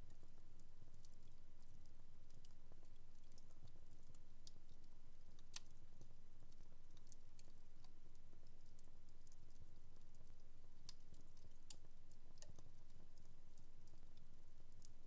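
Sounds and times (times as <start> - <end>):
wood fire crackling: 3.2 - 10.2, 10.8 - 15.0.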